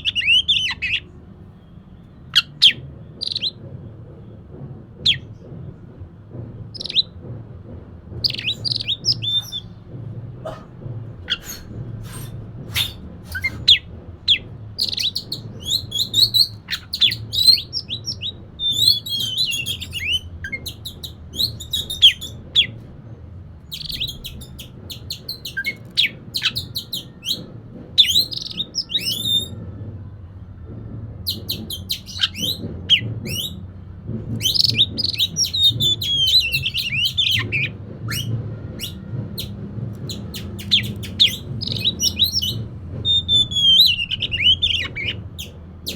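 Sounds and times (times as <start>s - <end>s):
bird singing chirps and trills: 2.4s - 3.6s, 6.8s - 7.1s, 8.2s - 9.8s, 11.3s - 22.8s, 23.7s - 29.6s, 31.3s - 33.6s, 34.4s - 45.9s.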